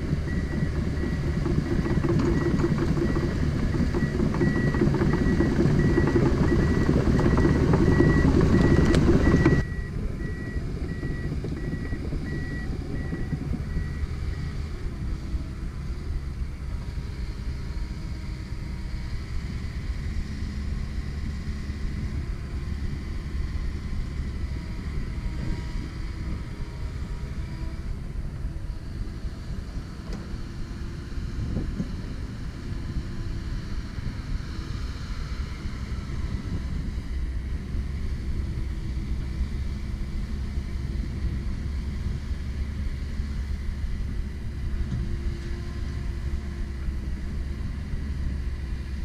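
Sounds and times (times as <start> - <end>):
excavator engine running: 0.0 - 34.3.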